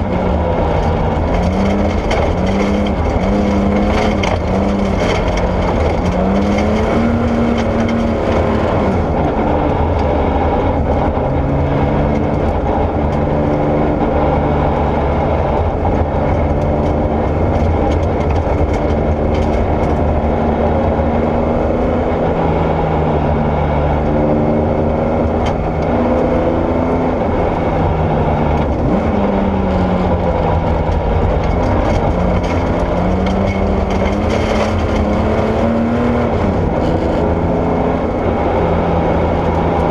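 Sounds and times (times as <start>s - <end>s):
rally car engine revving: 0.0s - 39.9s
tyres on gravel: 0.7s - 9.2s.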